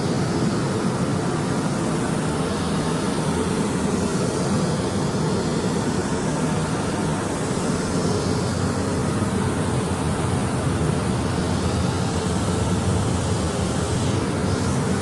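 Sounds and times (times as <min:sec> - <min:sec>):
even air hiss: 0:00.0 - 0:15.0
spray-painting machine running: 0:00.0 - 0:15.0.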